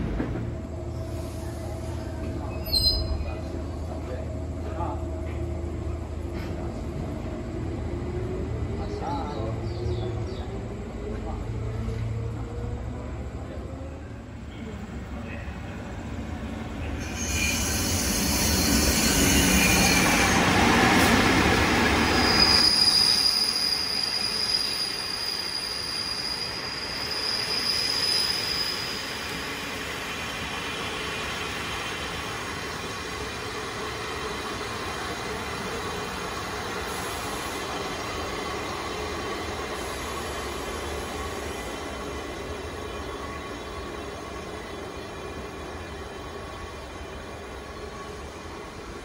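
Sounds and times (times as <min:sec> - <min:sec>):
high train wheel squeal: 0:00.9 - 0:05.4, 0:15.2 - 0:49.0.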